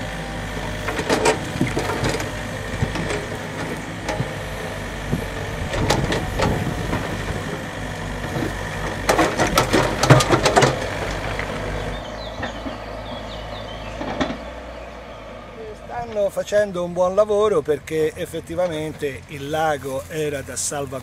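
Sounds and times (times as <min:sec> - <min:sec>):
heavy engine idling: 0:00.0 - 0:21.0
clanking and knocking: 0:00.7 - 0:07.6, 0:08.2 - 0:11.7, 0:14.0 - 0:14.6.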